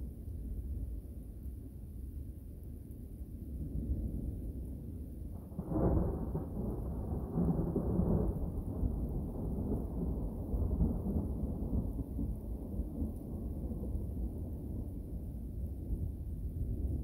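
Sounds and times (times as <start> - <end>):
rolling thunder: 5.3 - 17.0.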